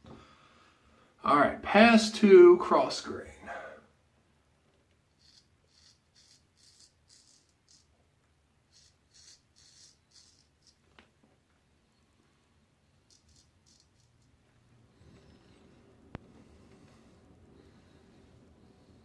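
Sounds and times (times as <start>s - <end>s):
razor scraping stubble: 5.1s - 8.0s, 8.7s - 10.9s, 13.0s - 14.4s.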